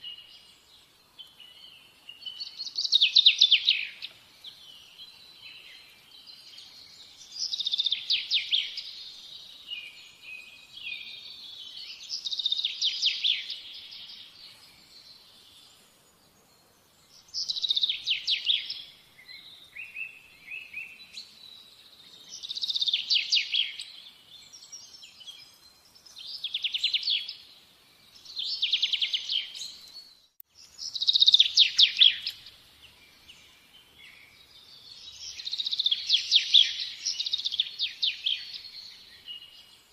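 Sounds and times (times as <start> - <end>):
songbird singing trills: 0.0 - 39.9.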